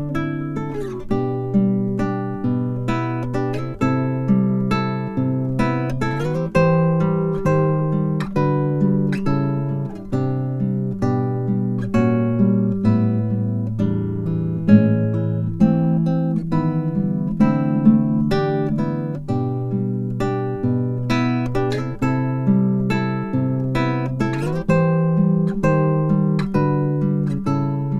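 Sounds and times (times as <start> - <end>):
acoustic guitar plucked notes: 0.0 - 27.9.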